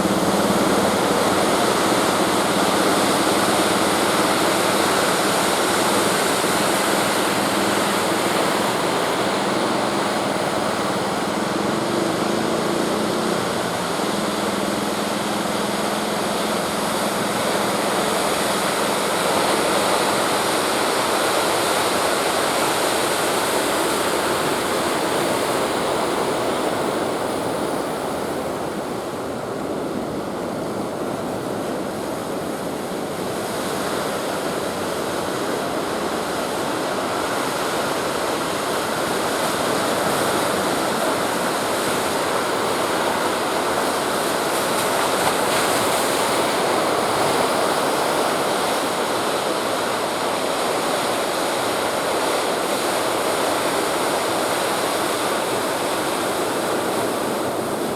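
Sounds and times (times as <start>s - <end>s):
waves roaring: 0.0s - 57.9s
wind: 0.0s - 57.9s.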